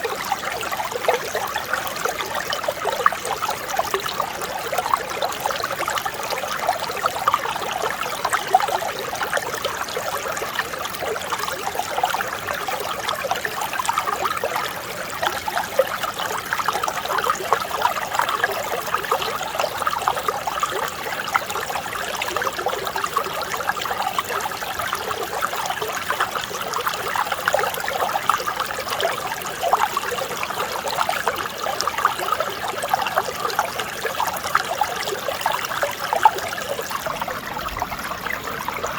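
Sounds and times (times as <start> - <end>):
stream babbling over rocks: 0.0 - 38.9.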